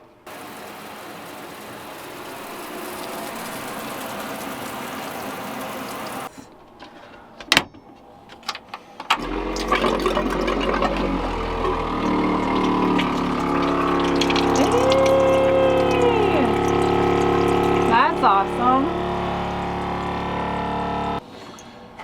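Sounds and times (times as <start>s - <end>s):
electric pump humming: 0.0s - 6.4s, 9.2s - 21.2s
steady hiss: 0.3s - 6.3s
rushing water: 0.3s - 6.4s, 9.5s - 21.2s.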